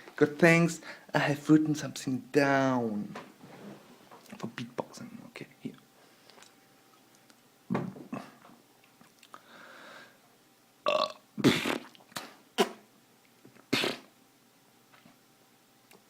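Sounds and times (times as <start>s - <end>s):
man belching: 10.9s - 11.9s.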